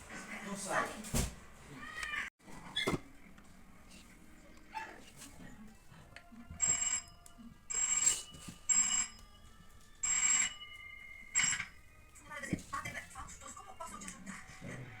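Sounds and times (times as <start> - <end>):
electronic telephone ringtone: 6.5 - 12.0.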